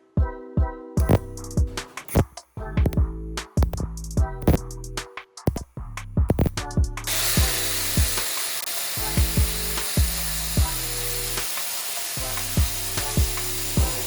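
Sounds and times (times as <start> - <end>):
music with deep kick drum: 0.2 - 8.3, 9.0 - 11.4, 12.2 - 14.0
power tool hissing on metal: 7.1 - 14.0.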